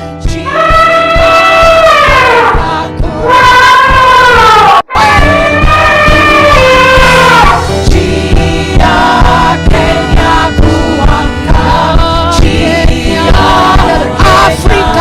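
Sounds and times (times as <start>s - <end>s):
group singing gospel: 0.0s - 4.1s, 5.0s - 15.0s
steady drum beat: 0.0s - 4.3s, 4.9s - 15.0s.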